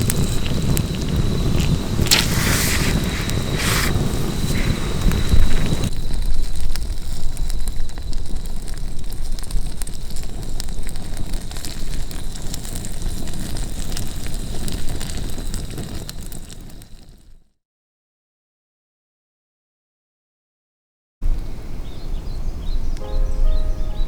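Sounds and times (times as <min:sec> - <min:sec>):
campfire crackling and popping: 0:00.0 - 0:17.4.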